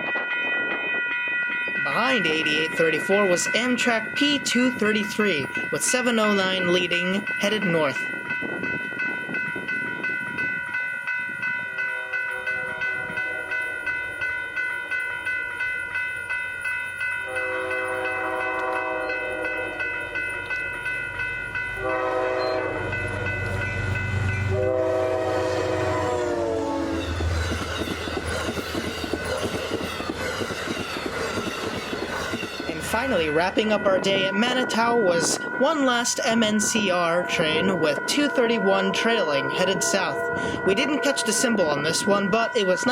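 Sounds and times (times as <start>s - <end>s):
crossing bell ringing: 0.0s - 42.9s
diesel locomotive engine rumble: 12.2s - 42.9s
train horn blasts: 17.2s - 20.5s, 21.8s - 27.4s
train wheels clattering: 27.0s - 33.4s.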